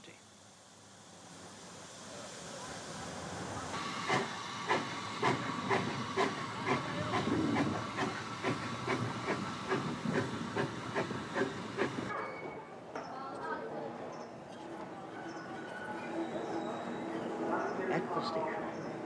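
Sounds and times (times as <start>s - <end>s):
steam hissing: 0.0s - 12.1s
steam locomotive exhaust beats: 1.0s - 12.1s.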